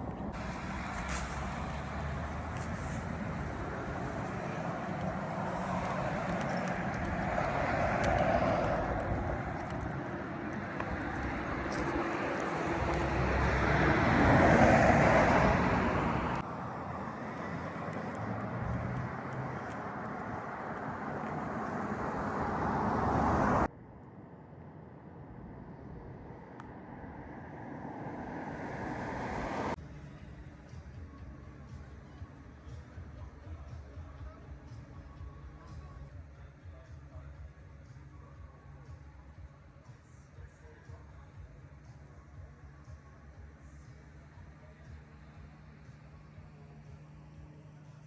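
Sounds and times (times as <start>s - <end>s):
trucks driving past: 0.0s - 34.3s
highway traffic: 0.0s - 48.0s.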